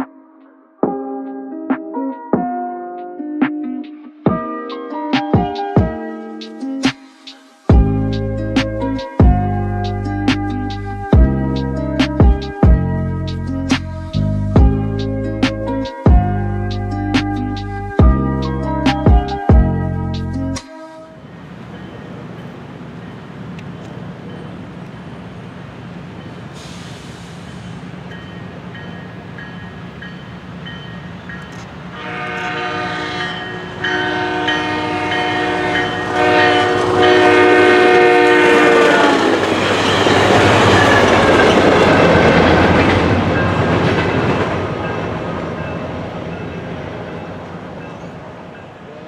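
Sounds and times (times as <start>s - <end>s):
train engine hum: 7.7s - 20.5s, 21.2s - 49.0s
train wheels on rails: 21.2s - 49.0s
train chord horn blasts: 31.9s - 41.5s.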